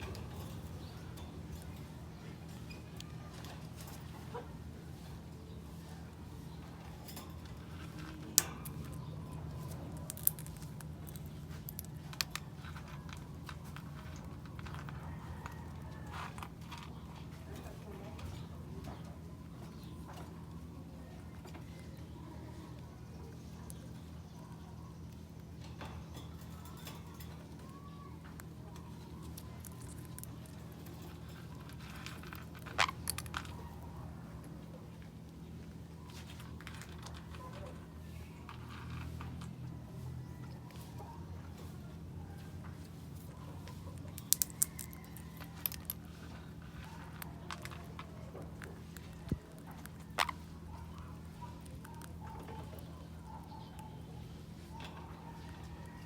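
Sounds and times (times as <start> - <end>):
steady low hum: 0.0 - 56.0
bird beak cracking seed shells: 7.6 - 17.0, 26.6 - 33.8, 43.9 - 52.9.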